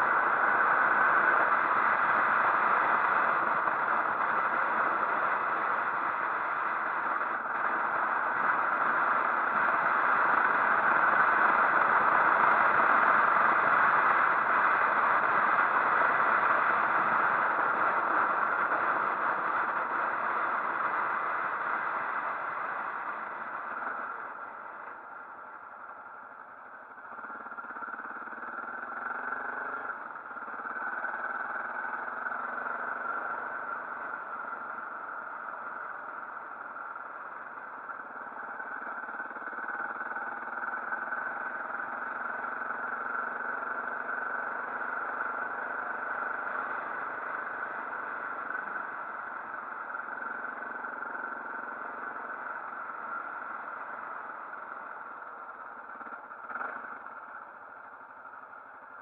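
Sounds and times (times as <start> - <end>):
motorcycle engine accelerating: 27.0 - 58.5.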